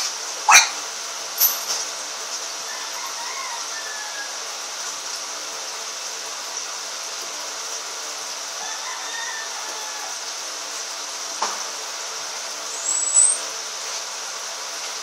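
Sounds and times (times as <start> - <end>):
high-pitched hiss: 11.7 - 14.0.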